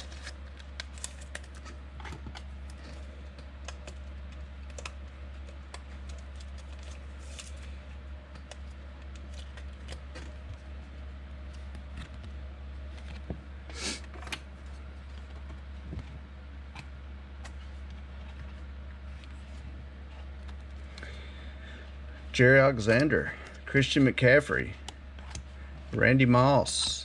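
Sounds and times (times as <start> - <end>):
cards being flipped: 0.0 - 10.6
low electrical hum: 0.0 - 27.0.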